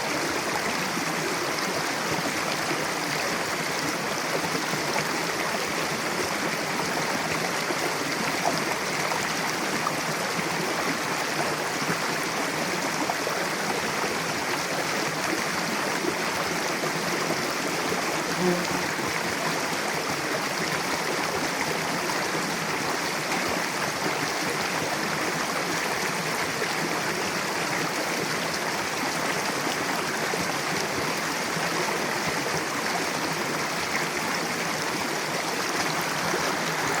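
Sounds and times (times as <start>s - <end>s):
river rushing over rocks: 18.9s - 37.0s.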